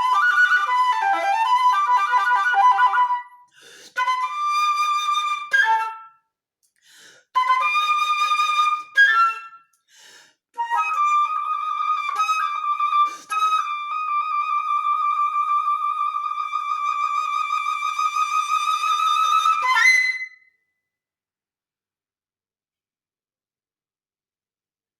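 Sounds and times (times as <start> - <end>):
solo flute playing: 0.0 - 6.2, 7.4 - 9.8, 10.6 - 20.5.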